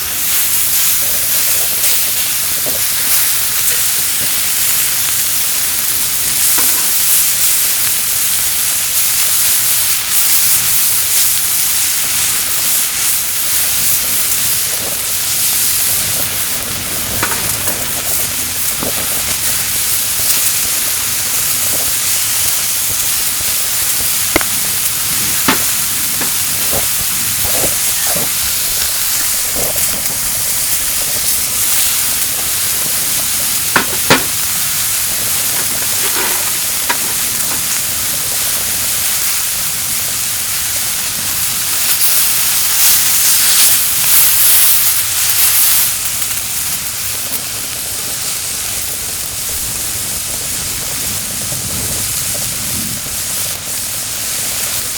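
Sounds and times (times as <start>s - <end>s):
meat sizzling on grill: 0.0s - 54.9s.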